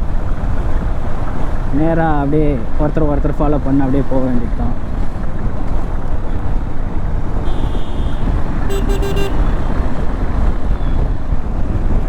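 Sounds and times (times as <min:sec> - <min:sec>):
heavy wind: 0:00.0 - 0:12.0
motorcycle road rumble: 0:00.0 - 0:12.0
vehicle horn toots: 0:07.4 - 0:10.0.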